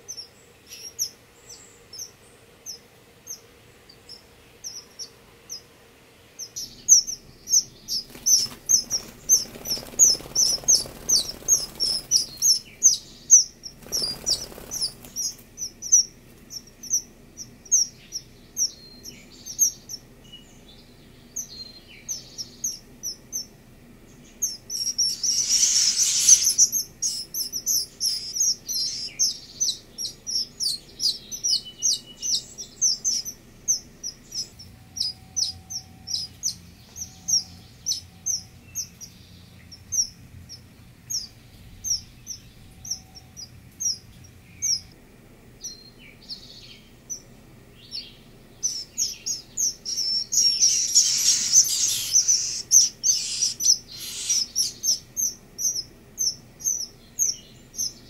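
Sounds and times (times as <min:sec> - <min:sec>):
nestlings chirping: 0:00.0 - 0:05.7, 0:06.4 - 0:45.0, 0:45.6 - 0:58.0
nestlings begging bursts: 0:06.4 - 0:18.8, 0:24.4 - 0:39.1, 0:48.6 - 0:57.9.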